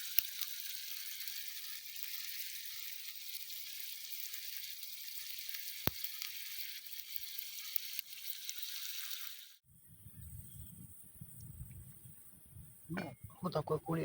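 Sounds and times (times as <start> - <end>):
onions sizzling in a pan: 0.0 - 9.6.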